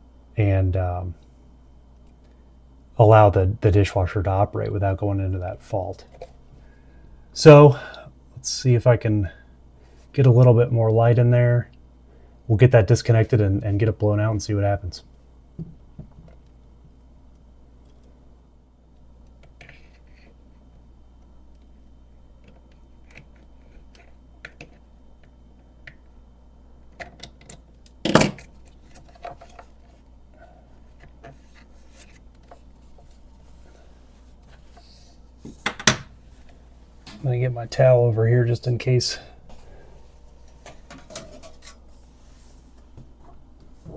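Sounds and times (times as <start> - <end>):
low steady hum: 0.0 - 43.9
small clicks and scrapes: 19.2 - 20.4, 22.4 - 26.0.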